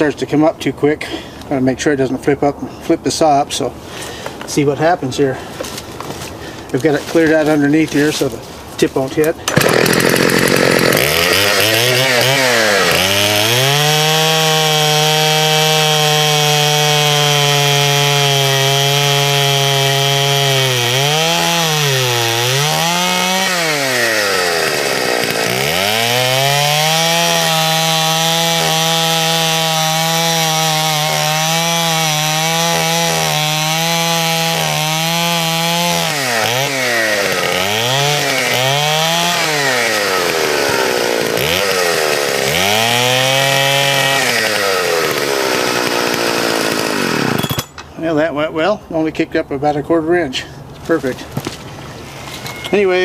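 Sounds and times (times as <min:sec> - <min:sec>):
chainsaw cutting tree trunk: 0:09.2 - 0:47.8.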